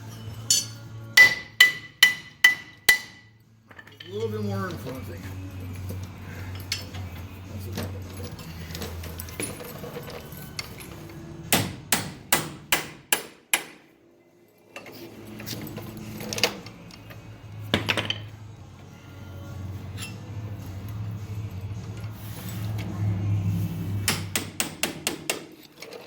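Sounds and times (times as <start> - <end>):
hammer striking steel: 0.5 - 3.4, 11.5 - 13.9, 24.0 - 25.6.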